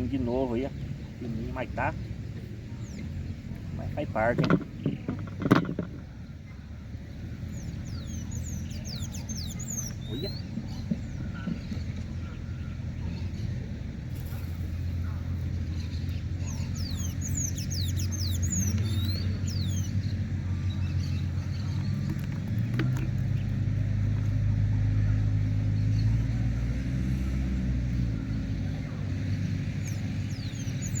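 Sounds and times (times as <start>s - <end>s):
high bird chirps: 7.4s - 12.4s, 15.7s - 22.0s, 29.6s - 31.0s.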